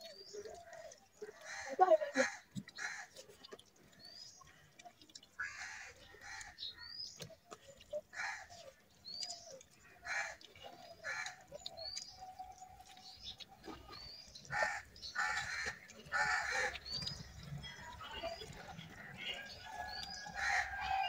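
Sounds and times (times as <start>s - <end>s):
other bird calls: 5.4s - 21.0s.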